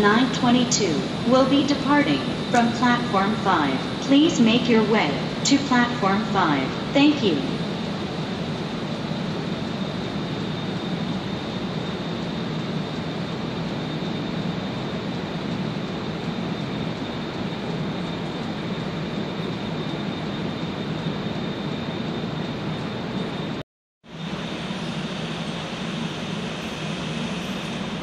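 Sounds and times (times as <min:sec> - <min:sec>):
thin high whine: 0:00.0 - 0:12.5
train rumbling: 0:00.0 - 0:19.4.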